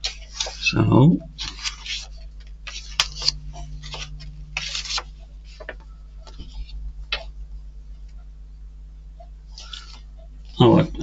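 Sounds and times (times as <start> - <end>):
parts rustling: 0.0 - 8.2
low electrical hum: 0.0 - 11.0.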